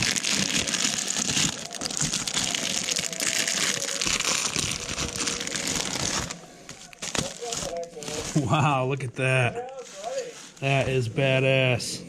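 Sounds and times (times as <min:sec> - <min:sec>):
packaging crinkling and rustling: 0:00.0 - 0:08.5.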